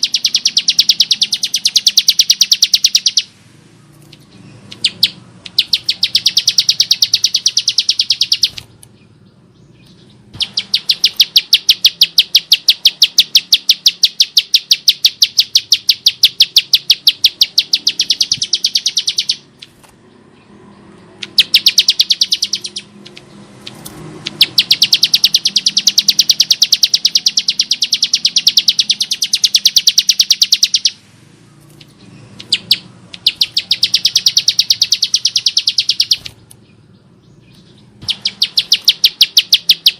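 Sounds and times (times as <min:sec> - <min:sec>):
bird rattling song: 0:00.0 - 0:03.3, 0:03.9 - 0:31.0, 0:31.6 - 0:39.9.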